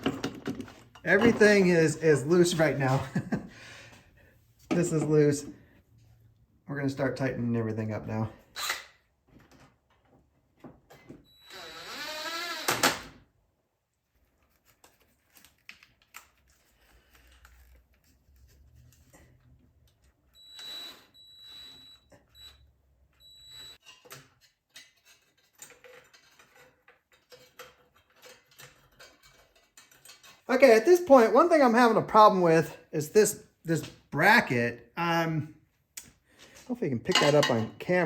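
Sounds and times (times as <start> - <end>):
clicks of tools and parts: 23.8 - 30.5.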